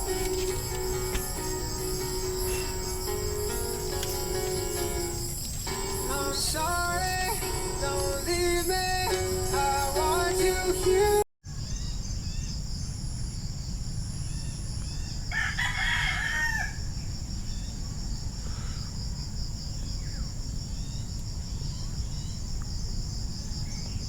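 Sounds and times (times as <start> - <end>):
insect chirring: 0.0 - 11.2
rooster crowing: 15.3 - 16.9.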